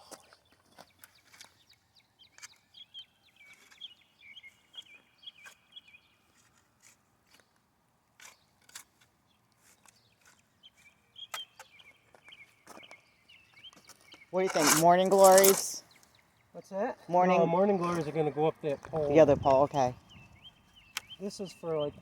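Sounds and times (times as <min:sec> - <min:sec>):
small birds chirping: 0:00.0 - 0:22.0
light clicks and scrapes: 0:06.3 - 0:10.9, 0:13.7 - 0:16.2.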